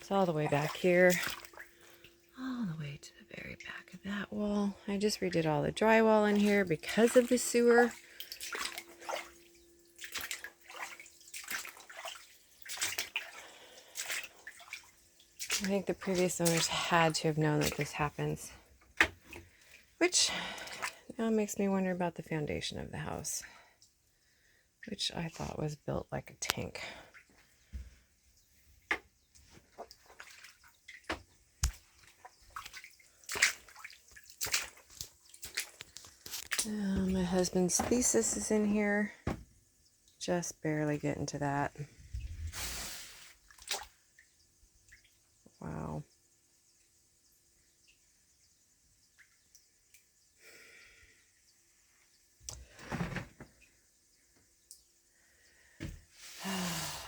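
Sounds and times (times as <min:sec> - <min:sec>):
splashing in shallow water: 0:00.0 - 0:02.2, 0:04.8 - 0:21.1, 0:28.9 - 0:38.7, 0:42.5 - 0:44.2.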